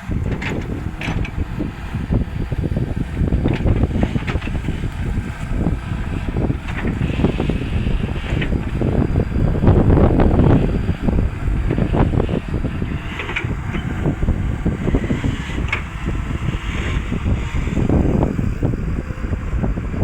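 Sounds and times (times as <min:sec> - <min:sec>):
excavator engine running: 0:00.0 - 0:20.0
wind buffeting microphone: 0:00.0 - 0:20.0
scattered knocks: 0:00.2 - 0:01.8.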